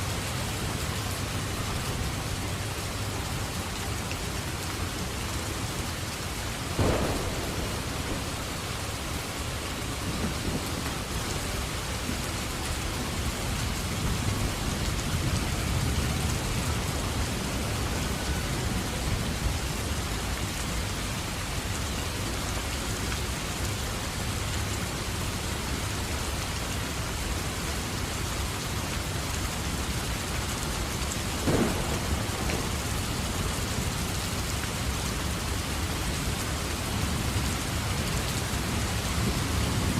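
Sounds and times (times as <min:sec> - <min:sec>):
steady rain: 0:00.0 - 0:39.9
low rumble of thunder: 0:06.7 - 0:20.0, 0:31.0 - 0:35.6
sharp thunderclap: 0:06.8 - 0:11.2, 0:31.4 - 0:33.7.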